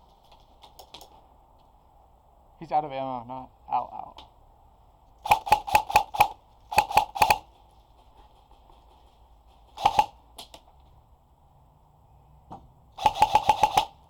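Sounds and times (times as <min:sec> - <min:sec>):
airsoft guns firing: 0:05.2 - 0:07.5, 0:09.8 - 0:10.5, 0:13.0 - 0:14.0.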